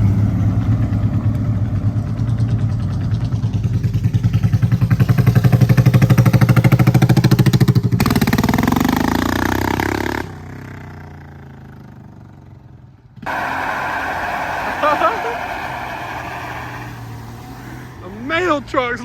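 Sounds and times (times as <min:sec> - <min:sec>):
car engine revving: 0:13.2 - 0:19.0.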